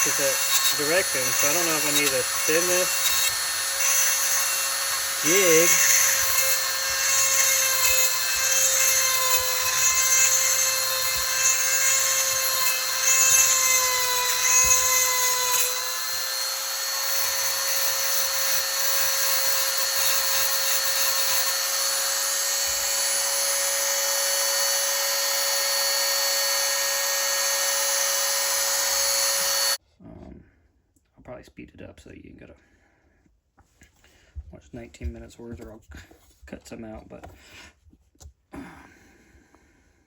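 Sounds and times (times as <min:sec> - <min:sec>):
grinding stone whining: 0:00.0 - 0:29.8.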